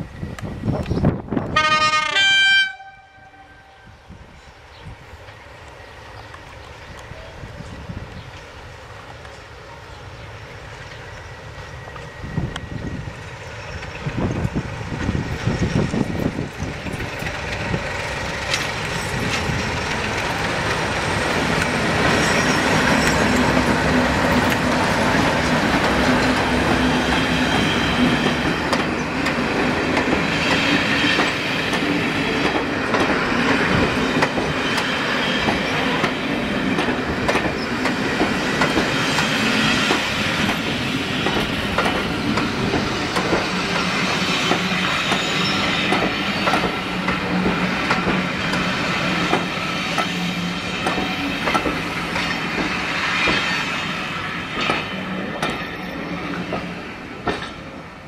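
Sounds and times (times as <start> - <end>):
diesel locomotive engine: 0.0 - 58.0
train wheel noise: 4.1 - 58.0
wheels clicking over rail joints: 13.4 - 27.3, 28.0 - 50.2, 50.8 - 53.5, 54.5 - 57.8.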